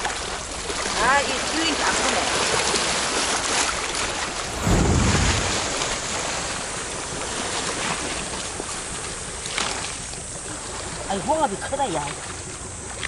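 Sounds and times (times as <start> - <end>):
wind buffeting microphone: 4.4 - 6.4.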